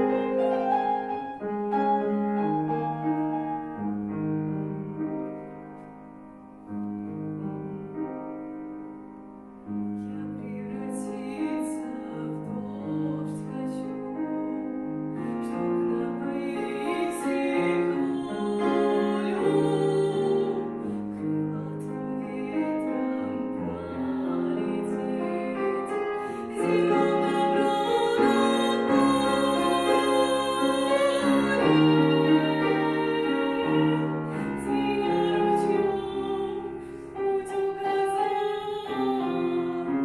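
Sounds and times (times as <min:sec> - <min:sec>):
piano playing slow chords: 0:00.0 - 0:40.0
woman singing a slow ballad: 0:10.0 - 0:40.0.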